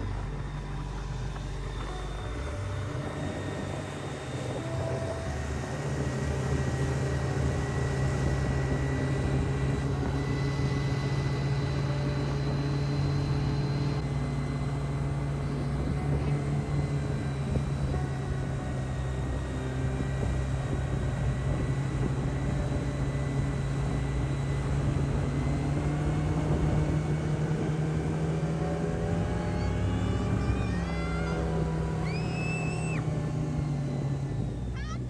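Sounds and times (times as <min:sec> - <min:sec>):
motorboat engine droning: 0:00.0 - 0:35.0.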